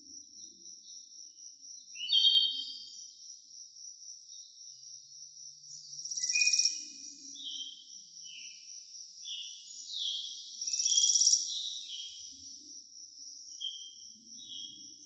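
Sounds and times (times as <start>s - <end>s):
rapid pulsed bird trill: 5.7s - 15.0s.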